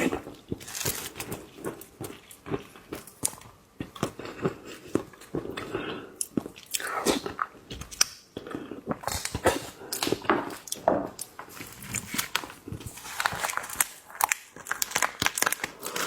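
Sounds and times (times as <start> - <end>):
shellfish shells crackling: 11.8 - 16.0.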